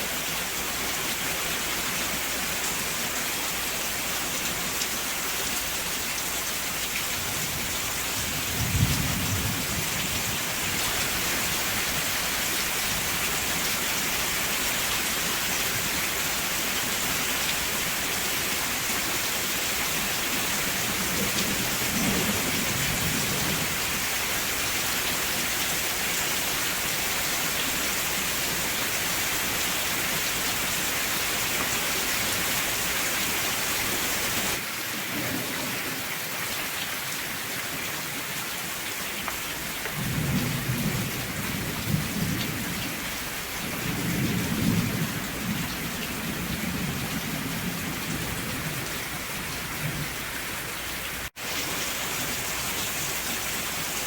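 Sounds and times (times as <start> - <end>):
steady rain falling: 0.0 - 54.0
low rumble of thunder: 7.2 - 11.2, 20.7 - 24.0, 39.9 - 50.3.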